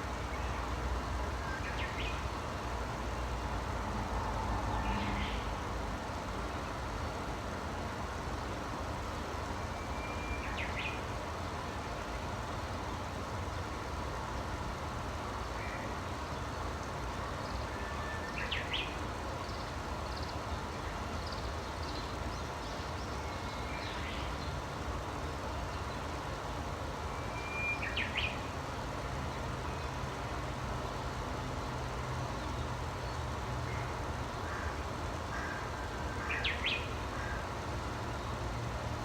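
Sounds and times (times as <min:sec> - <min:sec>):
birds singing: 0:09.1 - 0:13.7, 0:15.4 - 0:26.6, 0:27.2 - 0:28.6, 0:29.4 - 0:38.4
bird whistle with rising notes: 0:27.2 - 0:28.2.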